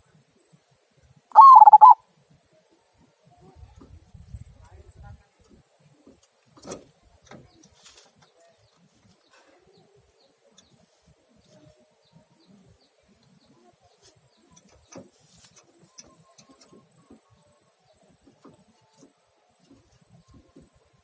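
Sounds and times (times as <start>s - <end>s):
dove calling faintly: 1.3s - 2.7s.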